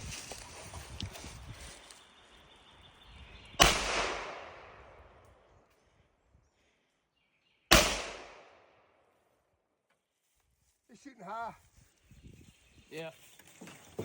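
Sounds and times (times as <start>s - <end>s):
gunshots with long echo: 3.6s - 5.1s, 7.7s - 8.8s.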